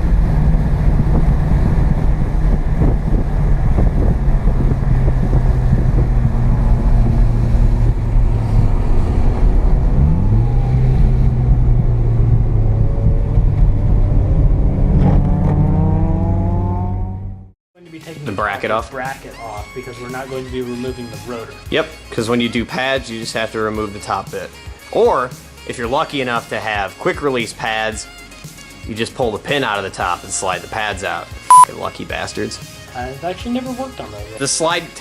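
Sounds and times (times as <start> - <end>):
wind noise: 0.0 - 15.5
road noise: 0.0 - 17.5
rotary car engine running: 0.0 - 17.5.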